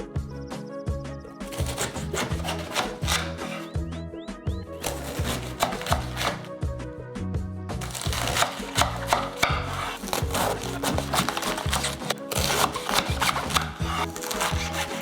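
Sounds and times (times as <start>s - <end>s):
background music with bass line: 0.0s - 15.0s
knife cutting on wooden board: 1.5s - 3.8s, 4.8s - 6.5s, 7.8s - 15.0s.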